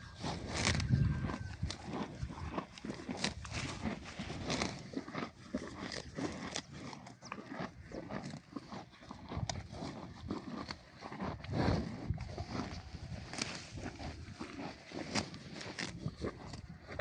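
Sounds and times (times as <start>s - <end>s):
farm animal sounds: 0.0s - 17.0s.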